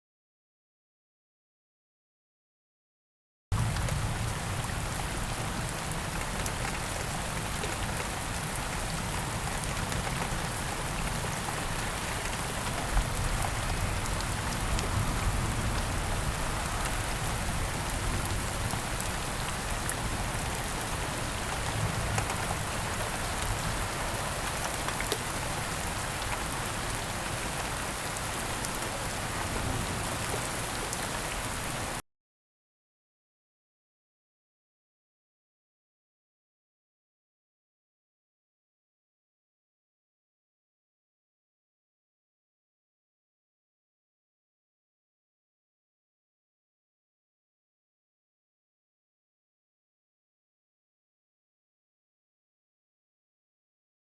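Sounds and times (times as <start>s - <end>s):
steady rain hiss: 3.6s - 32.0s.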